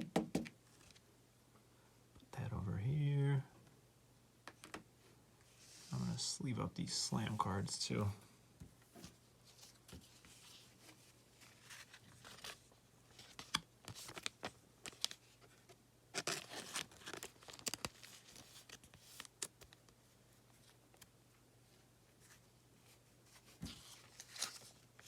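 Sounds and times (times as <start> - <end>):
plastic card sleeves rustling: 9.0 - 21.1, 22.2 - 25.0.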